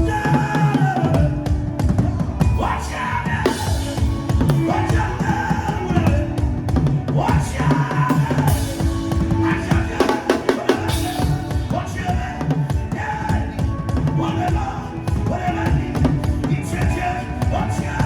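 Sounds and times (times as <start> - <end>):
backing music: 0.0 - 18.0
drum kit playing groove: 0.0 - 18.0.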